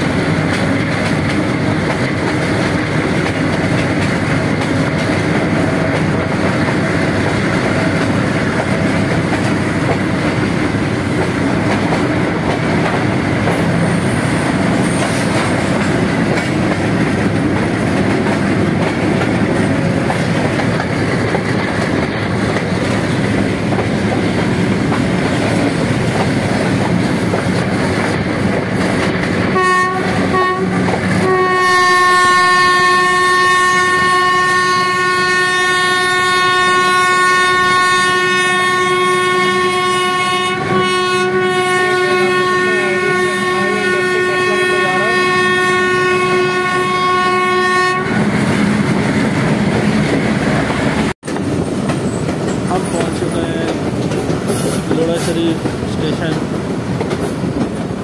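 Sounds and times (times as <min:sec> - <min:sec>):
train wheels and wind rumble: 0:00.0 - 0:58.0
train horn blasts: 0:29.5 - 0:48.7.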